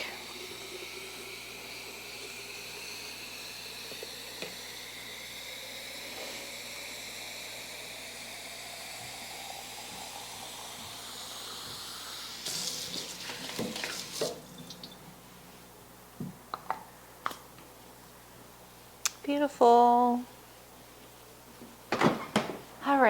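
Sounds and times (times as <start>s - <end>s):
tap water running into jar: 0.0s - 15.0s.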